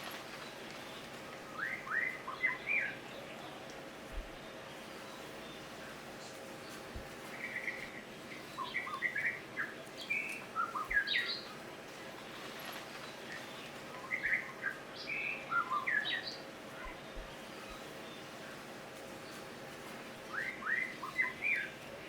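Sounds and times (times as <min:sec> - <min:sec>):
bird chirps and whistles: 0:20.3 - 0:21.7.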